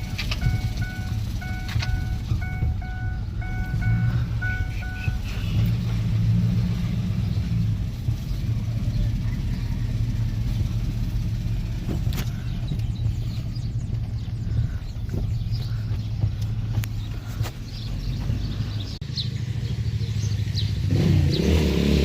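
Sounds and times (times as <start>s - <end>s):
electronic beeping tune: 0.0s - 5.4s
vehicle rumbling while driven: 0.0s - 22.0s.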